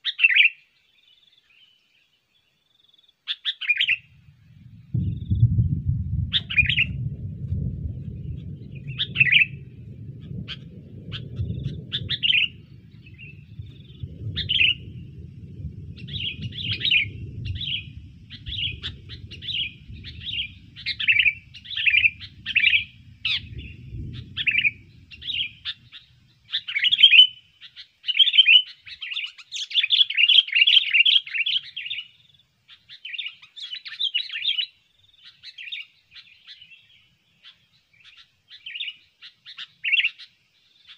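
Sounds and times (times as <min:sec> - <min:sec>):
bird chirping calls: 0:00.0 - 0:07.2, 0:07.9 - 0:40.9
low rumble: 0:04.1 - 0:26.6.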